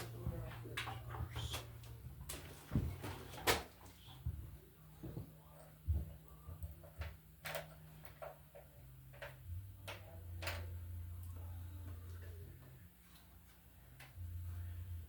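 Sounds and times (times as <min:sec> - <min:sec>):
low steady hum: 0:00.0 - 0:15.0
electrical cable clicks and knocks: 0:05.0 - 0:12.7.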